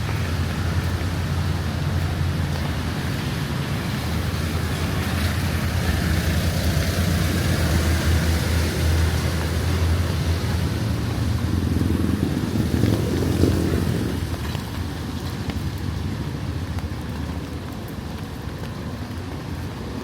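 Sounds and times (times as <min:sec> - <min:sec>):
vehicle engine passing: 0:00.0 - 0:14.3
street noise: 0:00.0 - 0:20.0.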